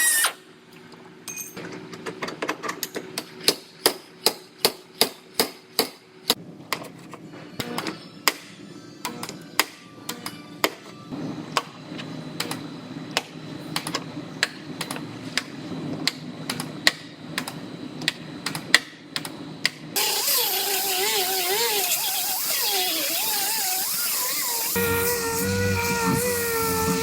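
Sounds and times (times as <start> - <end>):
hissing power tool whine: 20.0 - 27.0.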